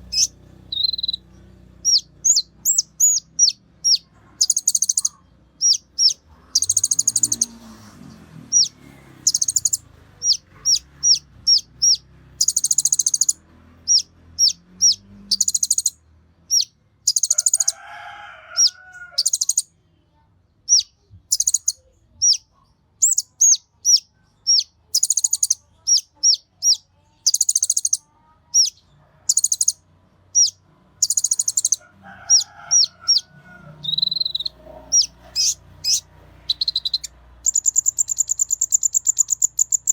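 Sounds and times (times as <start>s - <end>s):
lower bird call: 0.0s - 17.7s, 30.4s - 39.9s
bird whistles and buzzy trills: 0.1s - 1.3s, 33.8s - 39.9s.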